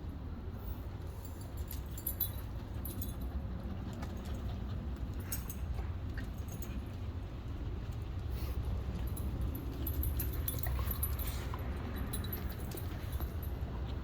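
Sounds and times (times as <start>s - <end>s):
light metallic jingling: 1.1s - 3.4s, 5.0s - 7.0s, 8.8s - 13.8s.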